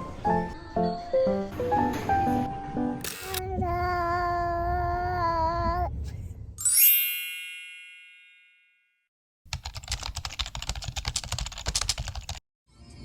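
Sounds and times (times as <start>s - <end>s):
bright chime: 6.6s - 8.9s
rapid clicking: 9.5s - 12.4s.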